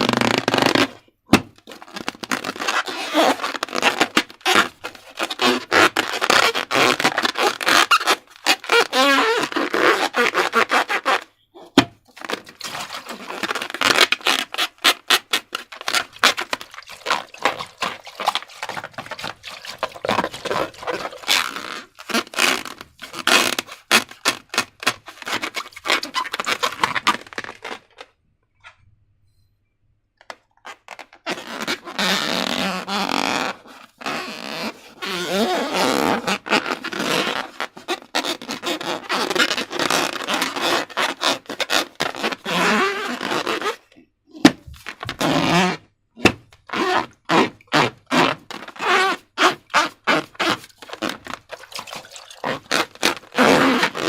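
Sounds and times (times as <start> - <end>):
slime squelching: 11.6 - 28.0, 49.6 - 54.0.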